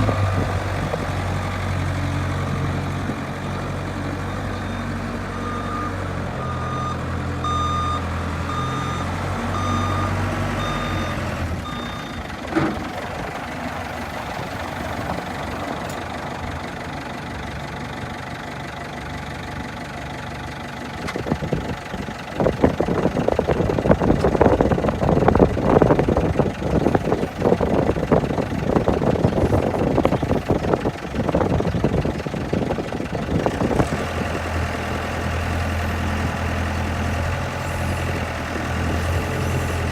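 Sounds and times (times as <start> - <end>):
diesel engine running: 0.0 - 39.9
reversing alarm beeping: 4.5 - 12.3.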